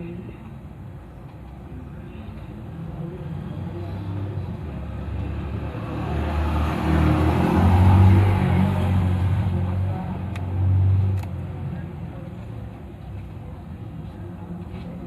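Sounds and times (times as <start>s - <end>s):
vehicle engine rumble passing: 2.9s - 12.6s.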